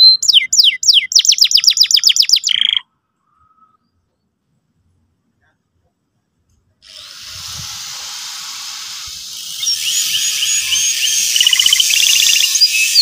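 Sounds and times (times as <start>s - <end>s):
canary chirping and trilling: 0.0s - 2.9s, 8.4s - 13.0s
steady hiss: 6.8s - 13.0s.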